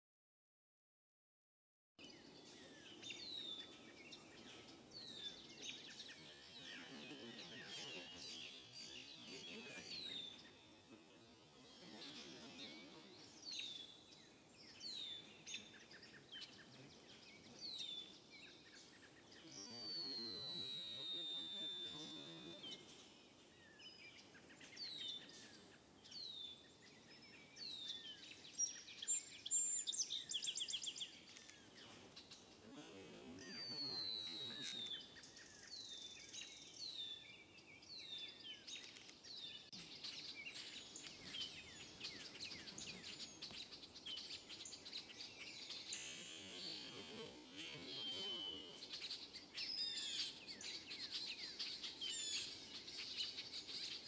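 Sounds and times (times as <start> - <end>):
birds chirping: 2.0 - 54.0
falling bird whistle: 19.8 - 22.7, 33.6 - 35.0, 45.9 - 49.1
rapid bird trill: 39.9 - 54.0.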